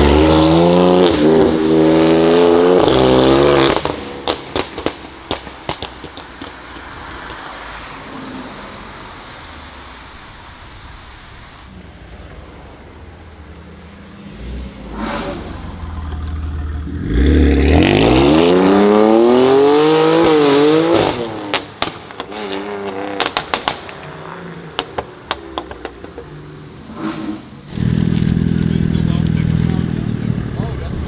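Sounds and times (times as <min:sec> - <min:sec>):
car engine accelerating hard: 0:00.0 - 0:04.9, 0:11.7 - 0:21.6, 0:25.6 - 0:31.0
exhaust crackles and pops: 0:02.8 - 0:07.8, 0:10.1 - 0:18.8, 0:21.0 - 0:31.0.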